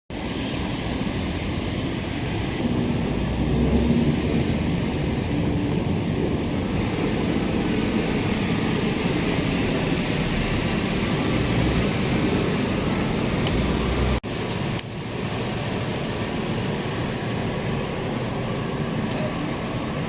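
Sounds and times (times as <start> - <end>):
low rumble: 1.1 - 14.3.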